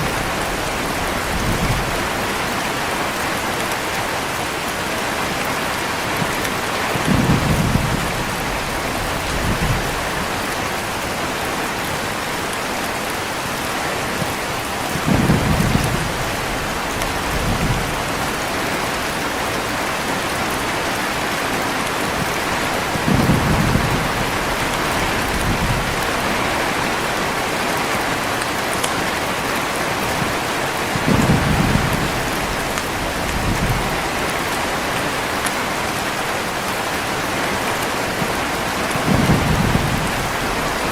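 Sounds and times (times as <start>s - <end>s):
heavy rain: 0.0s - 40.9s
thunder rolling: 6.9s - 10.4s, 14.9s - 18.8s, 22.2s - 26.9s, 30.2s - 34.3s, 39.0s - 40.9s.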